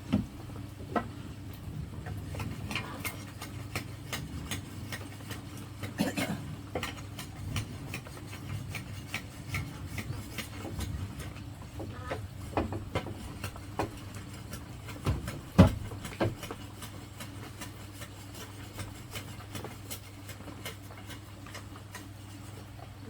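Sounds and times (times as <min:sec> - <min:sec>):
steady low hum: 0:00.0 - 0:23.0
knocks and taps on bamboo: 0:11.8 - 0:14.0, 0:14.9 - 0:18.1.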